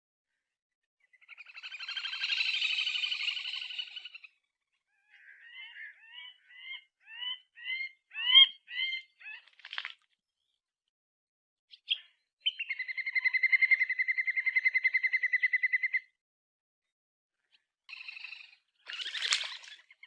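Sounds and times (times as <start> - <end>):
short rising bird chirps: 1.1 - 4.5, 17.9 - 20.0.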